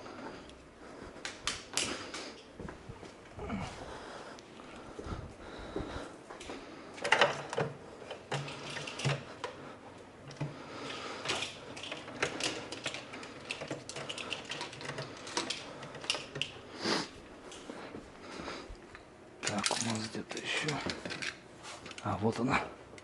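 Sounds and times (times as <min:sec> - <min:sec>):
metal tools clinking: 0:19.4 - 0:22.1.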